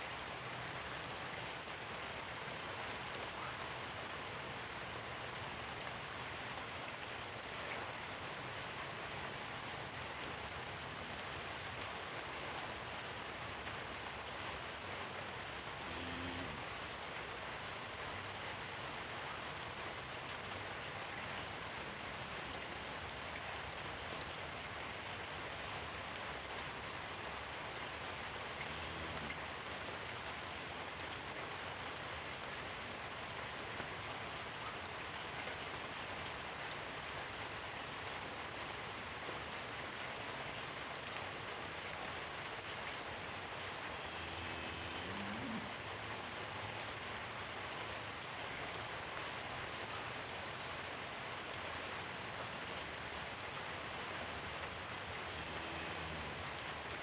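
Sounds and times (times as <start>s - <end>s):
steady rain falling: 0.0s - 57.0s
high insect drone: 27.4s - 31.6s, 42.4s - 48.9s, 55.2s - 56.6s
low croaks: 28.5s - 29.6s, 44.0s - 46.3s.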